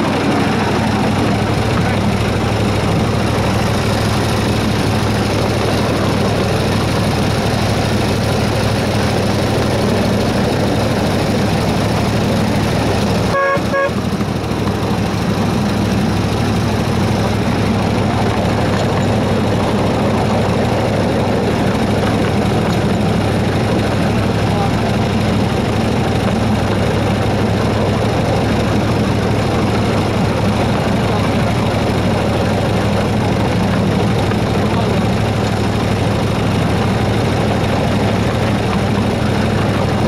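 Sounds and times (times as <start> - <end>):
miniature locomotive engine humming: 0.0 - 40.0
locomotive horn toot: 13.3 - 14.1.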